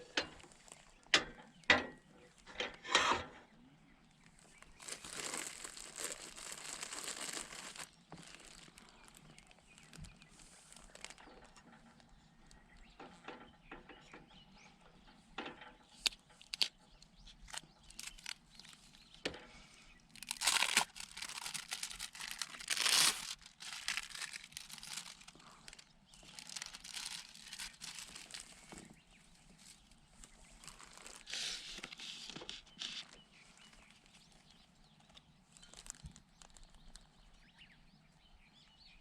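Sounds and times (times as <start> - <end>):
plastic wrapper crinkling: 4.4 - 11.6, 16.4 - 16.7, 17.5 - 19.1, 20.1 - 28.9, 30.6 - 33.2, 35.1 - 37.1.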